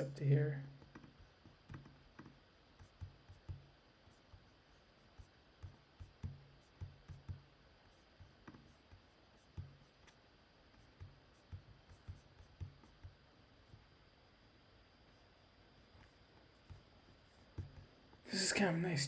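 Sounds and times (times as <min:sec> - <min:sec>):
dull taps on desk: 0:00.8 - 0:04.4, 0:05.6 - 0:07.5, 0:17.5 - 0:17.9
computer mouse clicking: 0:00.9 - 0:03.7.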